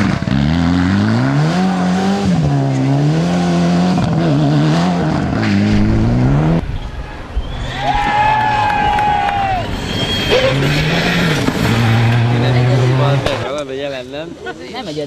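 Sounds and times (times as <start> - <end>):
rally car engine revving: 0.0 - 7.4, 9.8 - 13.6.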